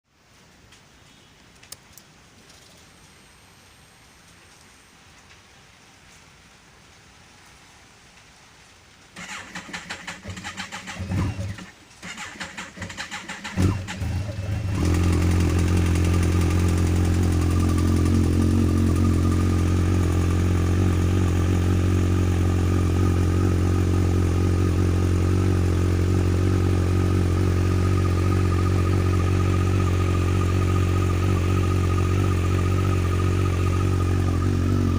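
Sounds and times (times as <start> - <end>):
motorcycle starter cranking: 9.2 - 19.1
motorcycle engine idling: 13.5 - 34.9.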